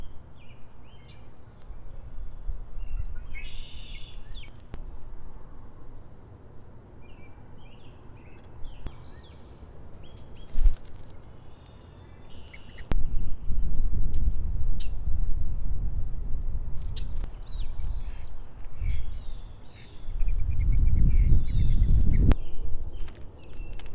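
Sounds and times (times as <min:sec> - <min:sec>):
birds chirping and calling: 0:00.0 - 0:04.7, 0:06.6 - 0:13.4, 0:16.8 - 0:23.9
low wind-like rumble: 0:00.0 - 0:23.9.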